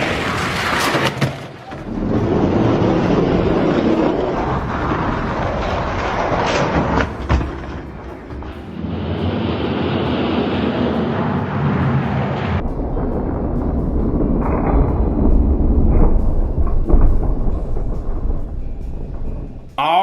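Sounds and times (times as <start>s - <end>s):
toy trucks rolling on plastic track: 0.0s - 7.7s.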